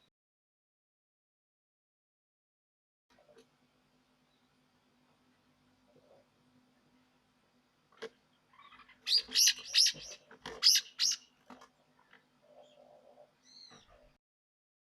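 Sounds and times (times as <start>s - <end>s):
songbird chirping: 8.3s - 14.2s.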